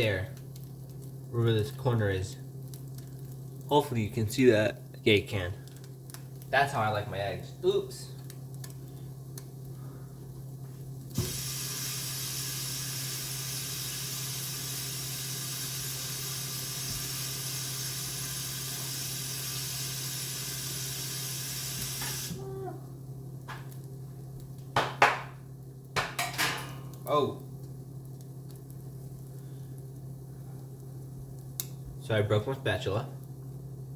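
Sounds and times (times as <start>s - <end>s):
low steady hum: 0.0s - 33.9s
steady rushing hiss: 11.1s - 22.4s.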